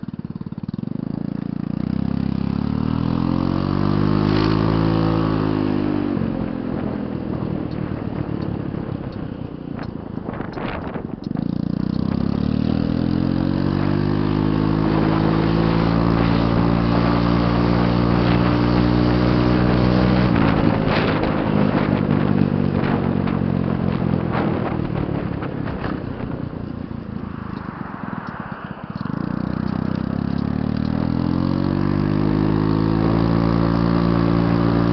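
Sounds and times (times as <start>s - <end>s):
motorbike engine accelerating: 0.0s - 34.9s
rushing noise: 26.2s - 30.3s.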